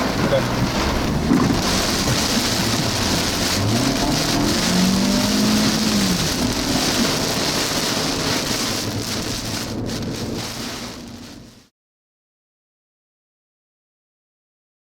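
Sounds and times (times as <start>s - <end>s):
heavy rain on a vehicle: 0.0s - 11.7s.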